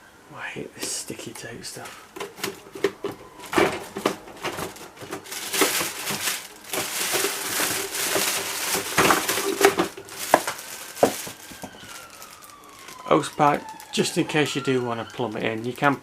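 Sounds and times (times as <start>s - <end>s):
wrapping crinkling: 1.8s - 16.0s.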